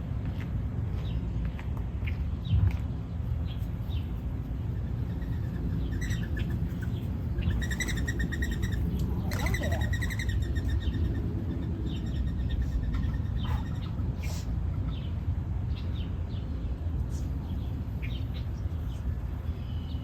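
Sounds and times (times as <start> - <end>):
steady low rumble: 0.0 - 20.0
songbird trills: 3.5 - 16.5.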